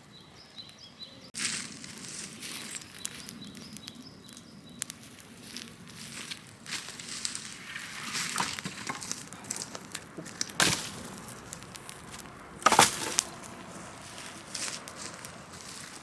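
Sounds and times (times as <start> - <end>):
bonfire crackling: 1.4 - 16.0
sharp loud wood cracks: 7.6 - 15.2.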